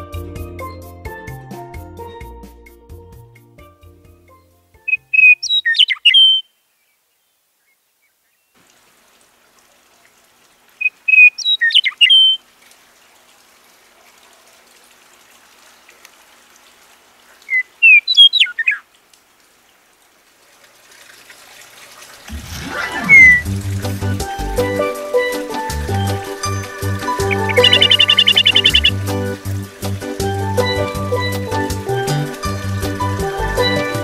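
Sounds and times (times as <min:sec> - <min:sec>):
songbird singing: 0:04.8 - 0:08.6, 0:10.7 - 0:12.4, 0:17.3 - 0:18.9, 0:23.0 - 0:34.0.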